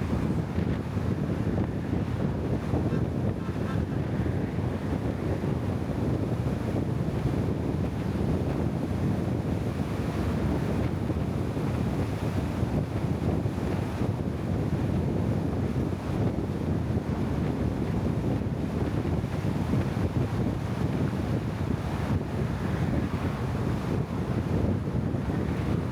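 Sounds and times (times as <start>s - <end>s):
steady low rumbling noise: 0.0s - 1.0s.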